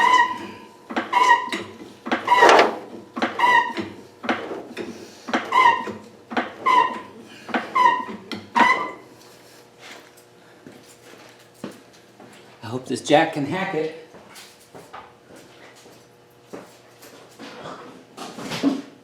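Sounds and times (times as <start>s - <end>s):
car jack squeaking and knocking: 0.0s - 4.6s, 5.3s - 9.0s.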